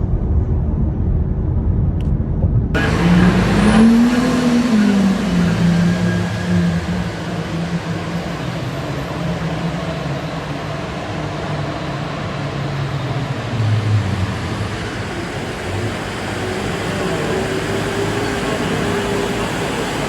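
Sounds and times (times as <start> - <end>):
vehicle engine drone: 0.0 - 20.0
road noise: 2.7 - 20.0.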